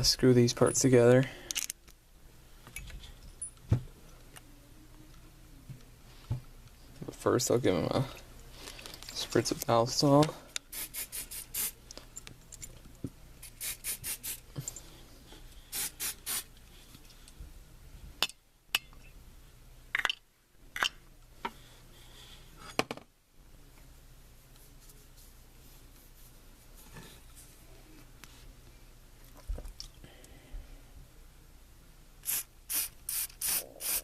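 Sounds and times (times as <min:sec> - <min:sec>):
oil spray spritzes: 0:10.7 - 0:11.8, 0:15.7 - 0:16.5, 0:32.2 - 0:34.0.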